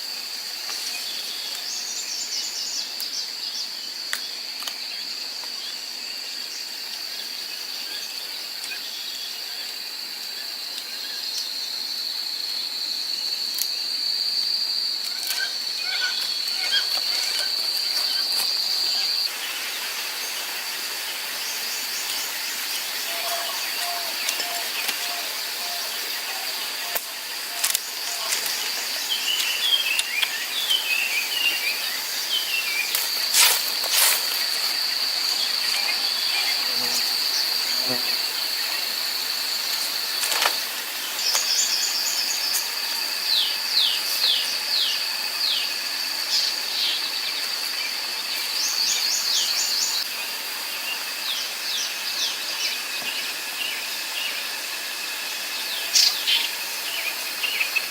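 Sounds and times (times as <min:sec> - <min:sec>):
high-pitched insect trill: 0:00.0 - 0:57.9
birds chirping: 0:15.2 - 0:45.7.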